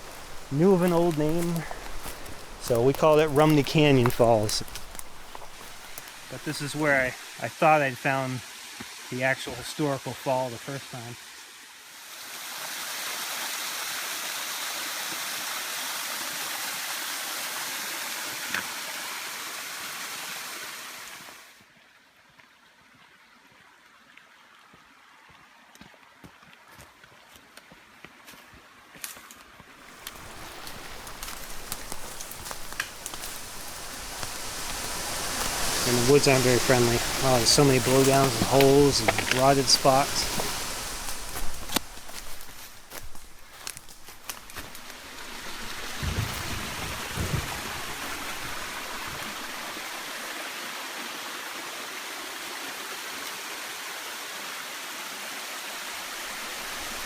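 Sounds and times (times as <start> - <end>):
twigs crackling underfoot: 0.0 - 7.3, 29.8 - 50.1, 56.0 - 57.0
running water rushing: 0.0 - 20.1, 29.8 - 57.0.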